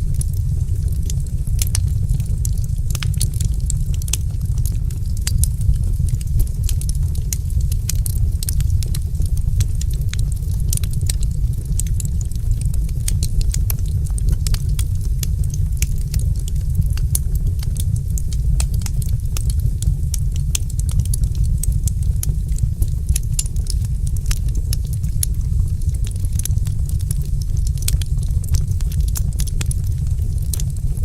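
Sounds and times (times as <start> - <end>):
low rumble: 0.0 - 31.0
wood fire crackling: 0.0 - 31.0.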